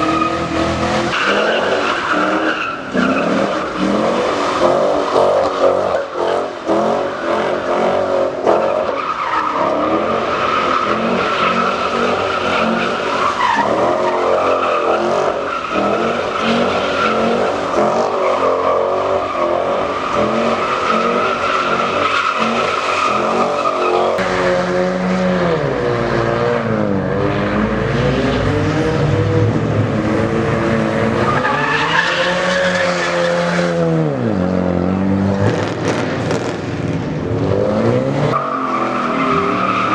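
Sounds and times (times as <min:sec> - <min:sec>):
engine at high revs: 0:00.0 - 0:36.6, 0:37.2 - 0:39.9
deeper engine revving: 0:24.1 - 0:31.3.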